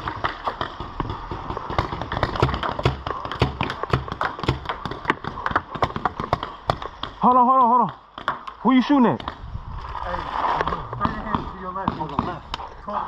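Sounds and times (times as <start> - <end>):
paintball markers firing: 0.0 - 7.4.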